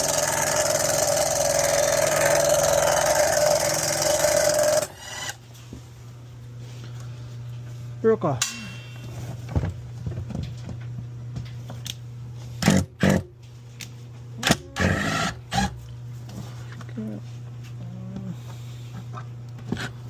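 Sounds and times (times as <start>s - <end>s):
steady low hum: 0.0s - 20.0s
sharp metal clanks: 8.4s - 9.2s.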